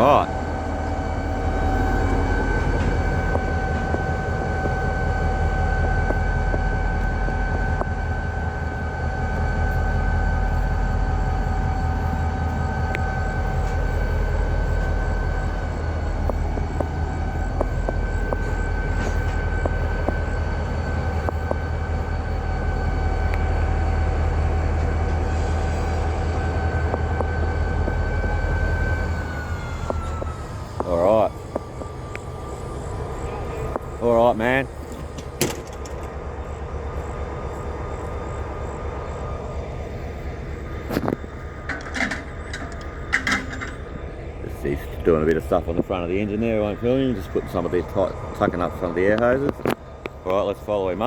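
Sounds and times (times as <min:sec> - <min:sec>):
high whine: 0:00.0 - 0:51.0
locomotive engine idling: 0:00.0 - 0:51.0.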